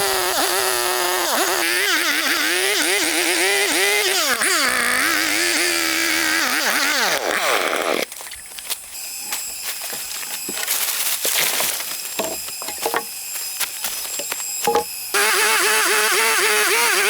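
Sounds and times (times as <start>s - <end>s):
chainsaw engine running: 0.0s - 17.0s
clicks and knocks: 12.2s - 13.1s.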